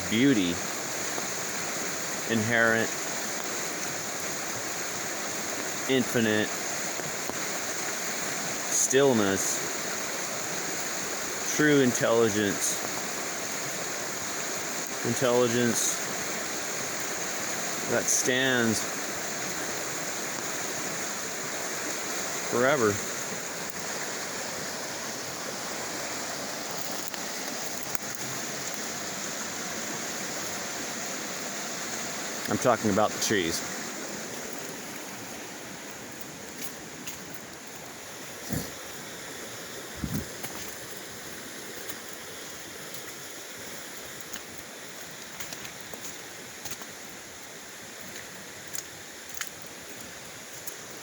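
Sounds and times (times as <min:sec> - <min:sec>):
creek water rushing: 0:00.0 - 0:51.0
faint ticks: 0:44.2 - 0:46.9, 0:48.1 - 0:50.8.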